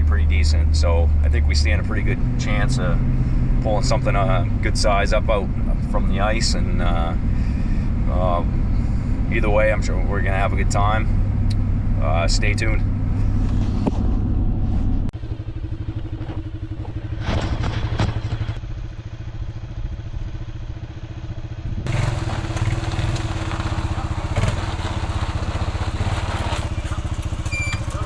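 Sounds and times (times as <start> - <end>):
small engine running: 15.2 - 28.0.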